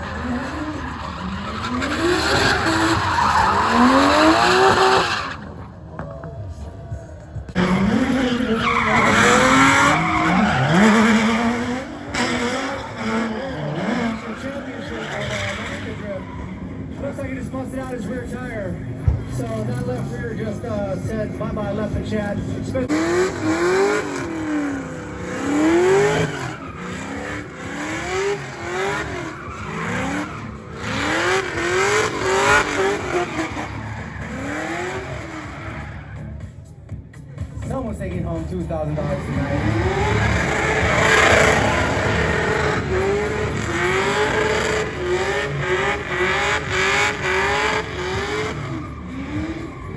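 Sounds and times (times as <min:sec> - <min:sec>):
engine revving high: 0:00.0 - 0:05.6, 0:07.5 - 0:17.0, 0:22.8 - 0:36.4, 0:38.8 - 0:49.9
tyres squealing: 0:00.0 - 0:05.8, 0:07.6 - 0:17.1, 0:22.9 - 0:36.4, 0:39.0 - 0:49.9.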